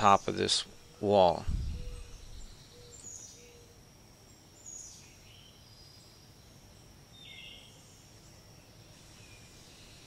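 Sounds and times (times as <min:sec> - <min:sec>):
steady hiss: 0:00.0 - 0:10.0
high bird chirps: 0:01.5 - 0:03.7.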